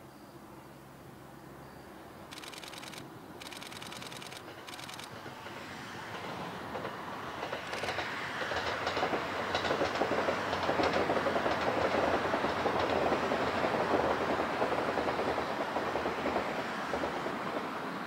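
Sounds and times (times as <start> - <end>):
electric train passing: 2.2 - 18.0
wheels clicking over rail joints: 2.6 - 17.8.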